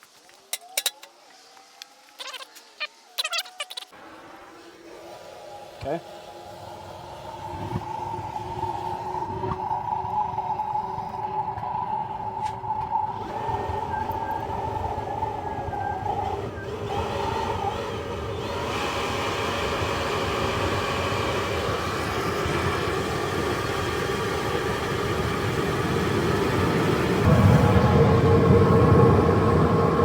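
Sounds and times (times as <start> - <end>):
whistling tone: 7.3 - 19.3
burners roaring: 13.2 - 30.0.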